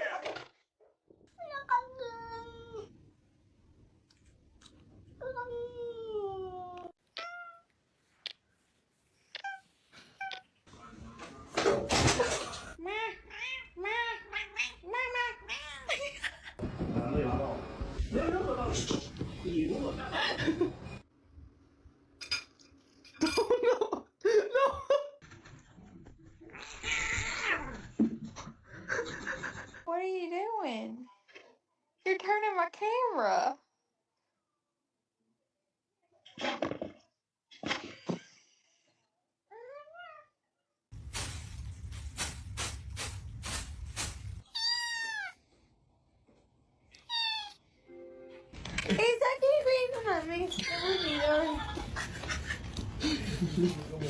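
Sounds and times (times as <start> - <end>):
dishes clinking: 22.2 - 23.7
cat meowing: 44.5 - 45.4, 47.0 - 47.6.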